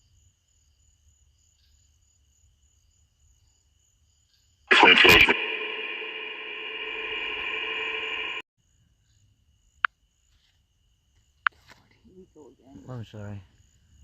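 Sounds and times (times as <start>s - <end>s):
radio static burst with clicks: 4.7s - 8.4s.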